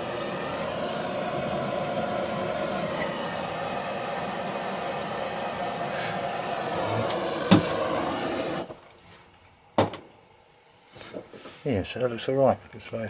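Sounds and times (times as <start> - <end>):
blowtorch flame hissing: 0.0 - 8.9.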